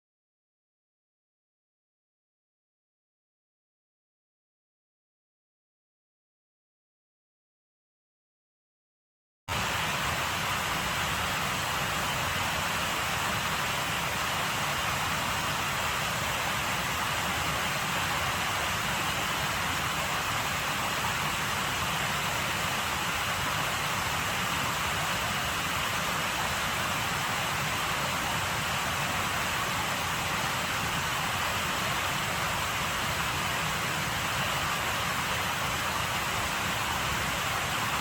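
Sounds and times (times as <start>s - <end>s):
falling water rushing: 9.5s - 38.0s.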